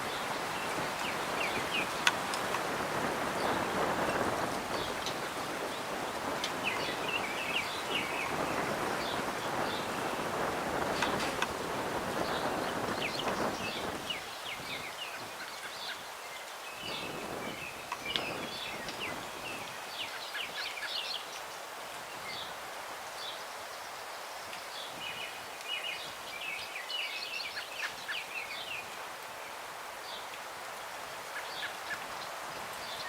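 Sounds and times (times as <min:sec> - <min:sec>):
breeze rustling branches: 0:00.0 - 0:33.0
small songbirds chirping: 0:00.0 - 0:33.0.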